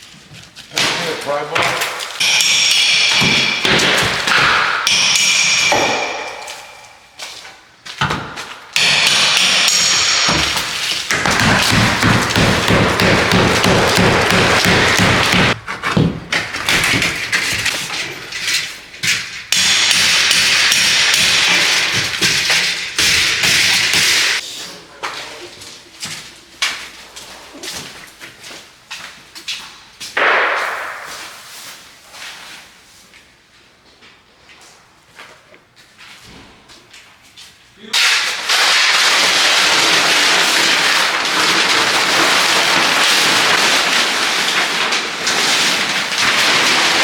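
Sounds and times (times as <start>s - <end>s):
hammer knocking: 1.6s - 7.2s, 8.0s - 17.2s
scraping and tearing drywall: 5.8s - 24.4s, 38.0s - 47.0s.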